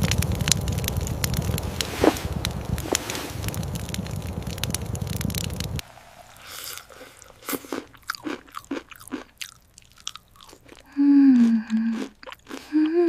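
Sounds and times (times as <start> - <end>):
crunchy chewing: 6.5 - 13.0
person humming: 10.9 - 12.1, 12.7 - 13.0.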